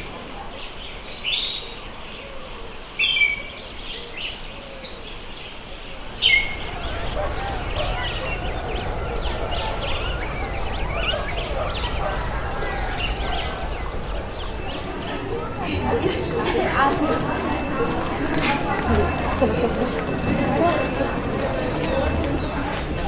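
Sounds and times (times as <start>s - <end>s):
faint distant voices: 5.9s - 23.0s.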